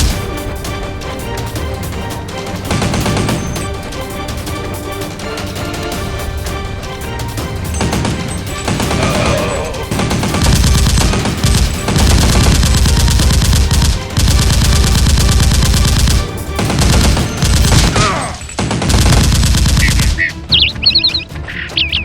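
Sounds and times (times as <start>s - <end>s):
rapid automatic gunfire: 0.0s - 0.4s, 2.6s - 3.8s, 7.7s - 20.7s
background music: 0.0s - 22.0s.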